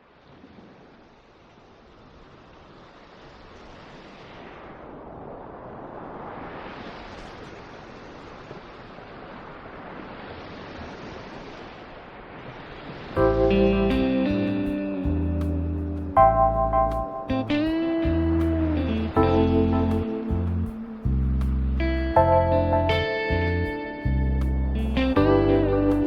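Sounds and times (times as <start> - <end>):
wind blowing in gusts: 0.0 - 16.2, 17.1 - 26.0
guitar music: 13.2 - 26.0.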